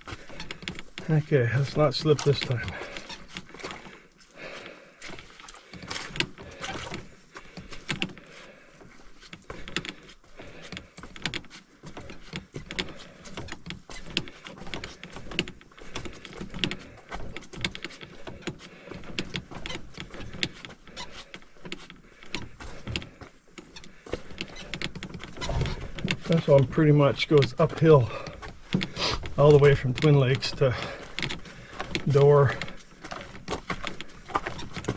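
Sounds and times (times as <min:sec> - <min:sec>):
footsteps on muddy trail: 0:00.0 - 0:34.9
pack creaking and knocking: 0:21.6 - 0:34.9.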